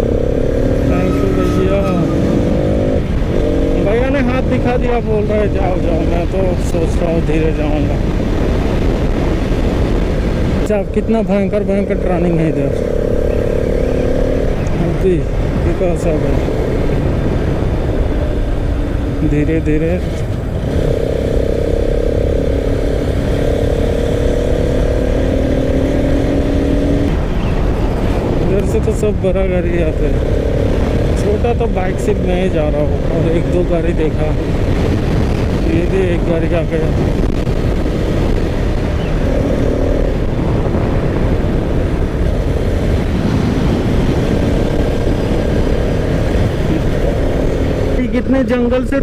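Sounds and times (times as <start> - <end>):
wind on microphone: 0.0 - 48.6
motorcycle engine rumble: 0.0 - 49.0
steady horn tone: 0.6 - 2.8.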